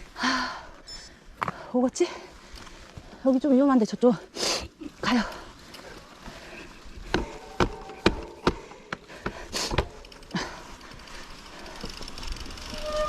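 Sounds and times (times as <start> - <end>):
bike knocks and clicks: 7.1 - 10.1.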